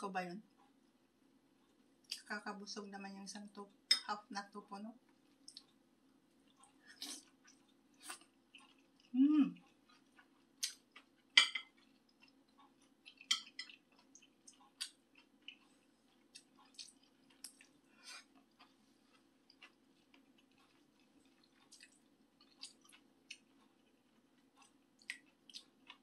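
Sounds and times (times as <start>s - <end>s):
faint low hum: 0.0s - 26.0s
wet chewing smacks: 11.8s - 24.0s.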